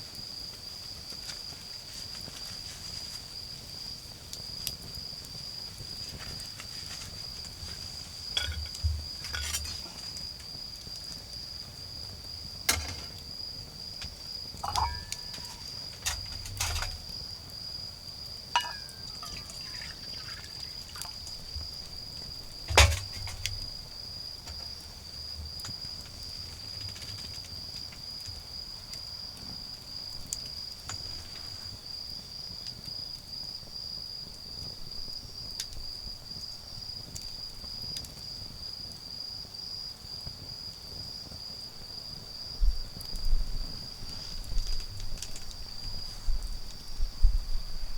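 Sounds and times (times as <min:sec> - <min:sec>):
cricket trilling: 0:03.4 - 0:39.9.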